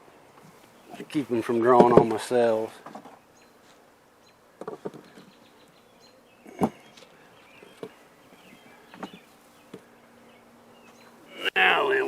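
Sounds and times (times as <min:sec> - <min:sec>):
honey bees buzzing: 0:03.2 - 0:12.0.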